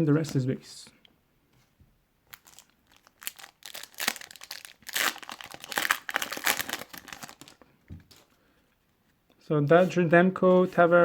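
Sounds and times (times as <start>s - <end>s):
wrapper tearing and crinkling: 2.3s - 7.6s.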